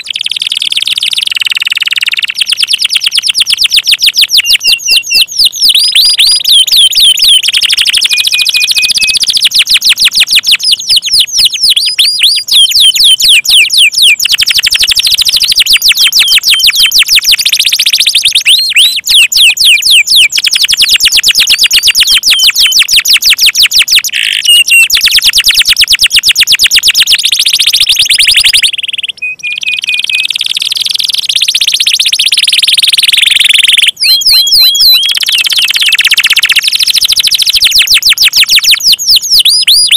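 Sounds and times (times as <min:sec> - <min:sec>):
canary singing in trills: 0:00.0 - 0:39.9.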